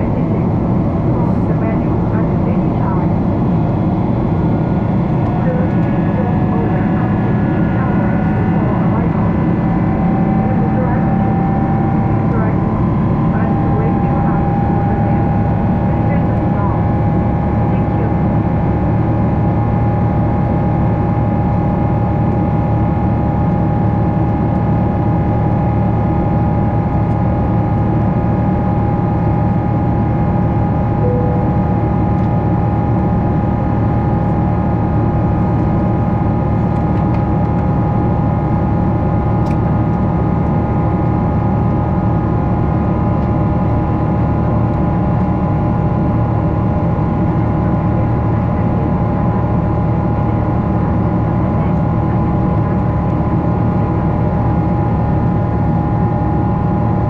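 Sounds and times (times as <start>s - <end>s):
constant whine tone: 0.0s - 57.0s
jet engine cabin hum: 0.0s - 57.0s
short tone: 31.0s - 32.1s.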